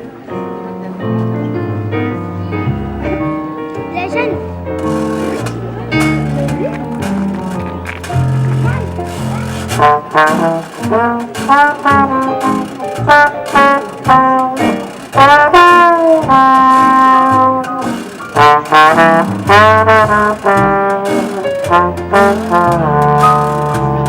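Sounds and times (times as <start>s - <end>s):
jazz band brass horns: 4.8s - 24.0s.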